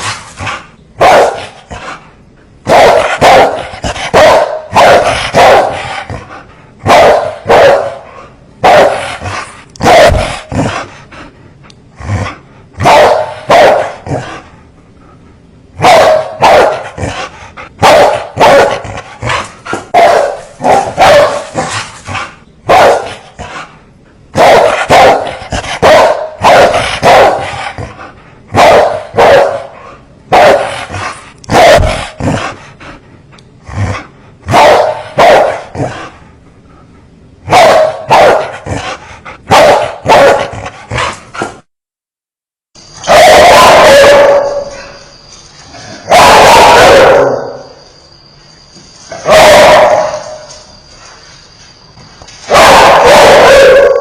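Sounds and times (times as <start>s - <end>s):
dogs barking: 0.0s - 2.0s, 2.6s - 10.9s, 12.8s - 14.4s, 15.8s - 23.6s, 24.3s - 32.5s, 34.5s - 36.1s, 37.4s - 41.4s, 43.0s - 45.0s, 45.8s - 47.8s, 49.1s - 50.6s, 52.5s - 54.0s.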